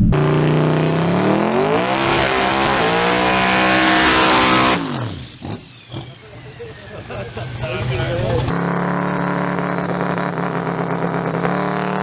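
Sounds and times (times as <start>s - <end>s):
truck engine revving at full throttle: 0.0s - 12.0s.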